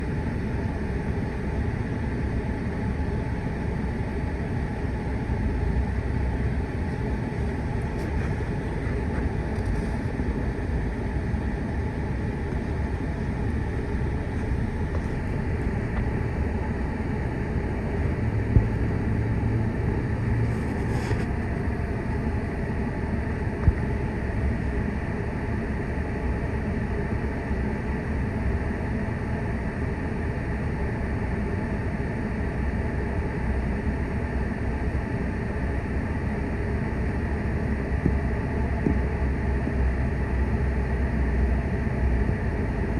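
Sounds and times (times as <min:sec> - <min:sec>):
fire truck and traffic engines rumbling: 0:00.0 - 0:42.9
road noise: 0:06.9 - 0:22.5.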